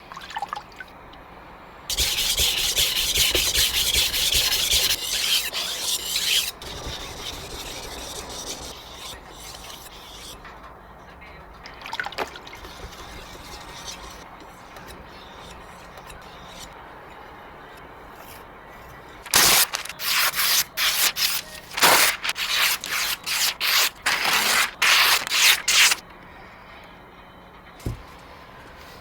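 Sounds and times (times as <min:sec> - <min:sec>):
knife being sharpened: 0:04.8 - 0:06.5, 0:19.3 - 0:26.0.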